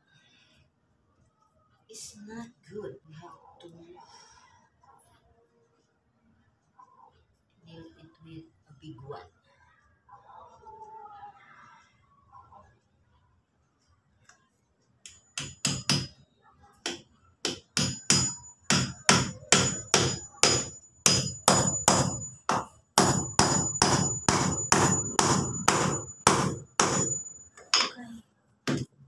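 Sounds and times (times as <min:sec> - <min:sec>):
hammer driving nail into wood: 0:16.9 - 0:28.0
high metallic ring: 0:23.3 - 0:28.2.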